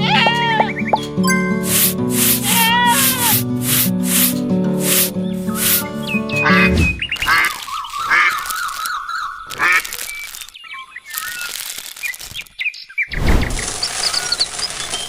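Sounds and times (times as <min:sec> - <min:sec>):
wavering bird call: 0:00.0 - 0:01.0, 0:02.4 - 0:03.4
birds chirping and whistling: 0:00.0 - 0:03.2, 0:04.4 - 0:15.0.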